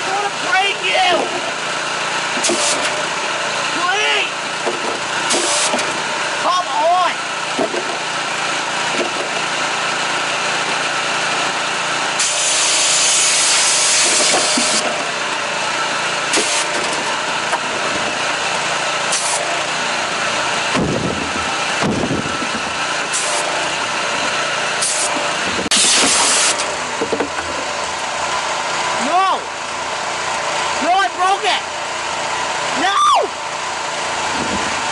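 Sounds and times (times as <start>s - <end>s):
power washer engine running: 0.0s - 34.9s
high-pressure water spray hissing: 2.4s - 3.0s, 5.3s - 5.8s, 12.2s - 14.8s, 16.3s - 16.7s, 19.1s - 19.6s, 23.1s - 23.7s, 24.8s - 26.7s.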